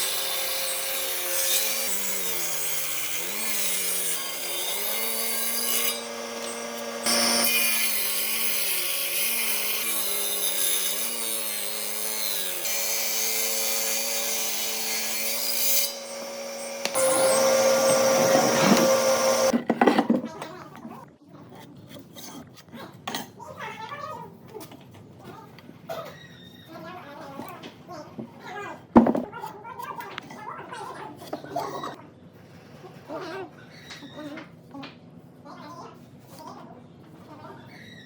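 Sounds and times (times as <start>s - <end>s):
power tool motor: 0.0s - 19.5s
grinding on wood: 4.7s - 8.0s, 15.8s - 19.5s.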